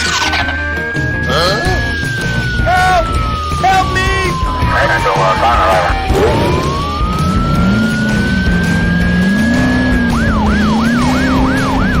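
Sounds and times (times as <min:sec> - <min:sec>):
police siren wailing and yelping: 0:04.4 - 0:07.0.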